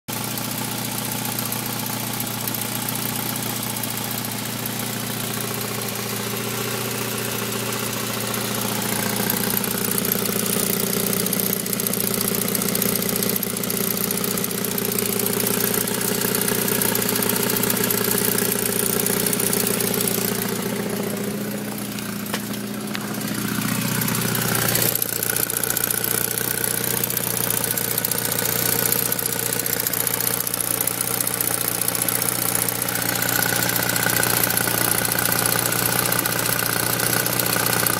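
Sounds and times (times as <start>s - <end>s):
car engine idling: 0.1s - 37.9s
engine ticking: 0.1s - 37.9s.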